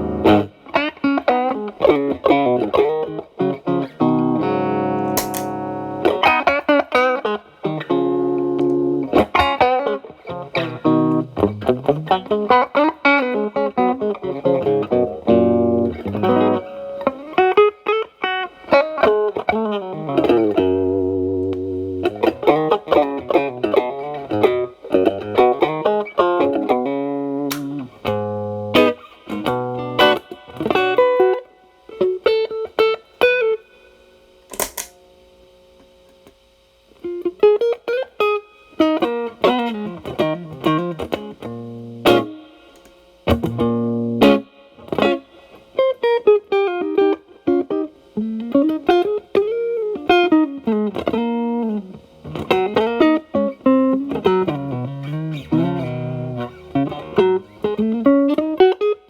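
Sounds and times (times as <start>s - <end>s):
overdriven electric guitar blues lines: 0.0s - 35.0s, 37.0s - 59.0s
sharp click: 5.0s - 5.6s, 27.5s - 27.8s, 34.5s - 35.0s.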